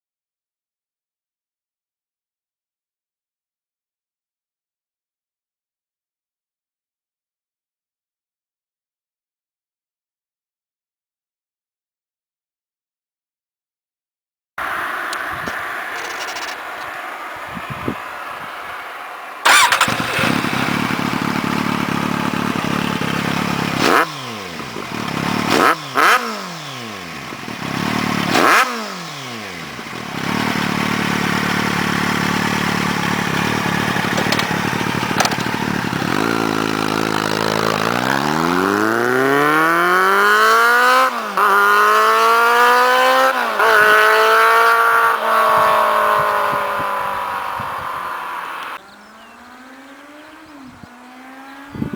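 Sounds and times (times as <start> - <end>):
motorcycle engine revving: 14.6 - 51.9.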